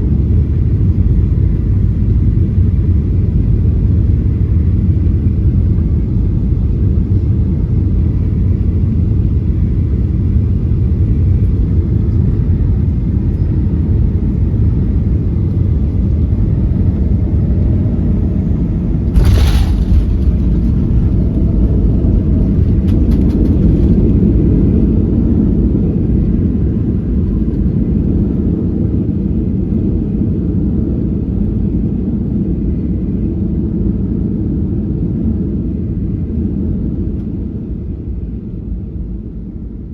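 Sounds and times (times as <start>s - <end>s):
airliner cabin rumble: 0.0s - 39.9s
sudden loud knock: 19.2s - 23.0s.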